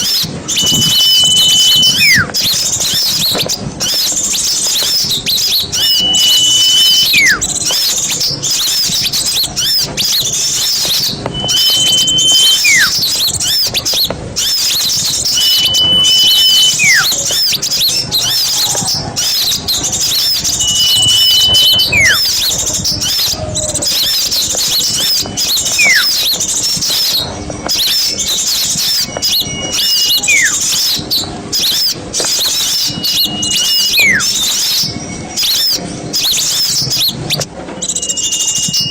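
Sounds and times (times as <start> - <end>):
held whistle: 0.0 - 38.9
small songbirds chattering: 0.0 - 38.9
bird call sliding downward: 0.5 - 2.4, 4.8 - 7.7, 10.6 - 26.4, 27.8 - 31.0, 31.6 - 35.7.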